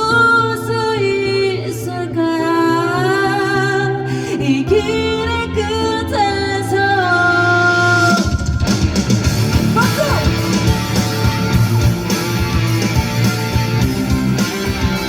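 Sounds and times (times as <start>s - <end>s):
pop-rock band playing: 3.0s - 15.0s.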